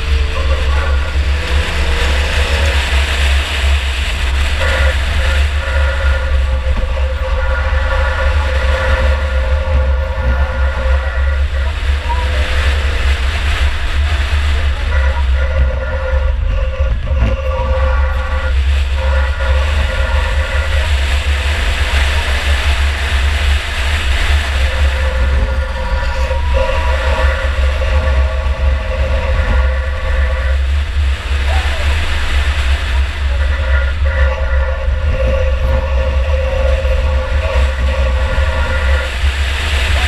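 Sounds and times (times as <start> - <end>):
car engine running hard: 0.0 - 40.0
engine whine: 0.0 - 40.0.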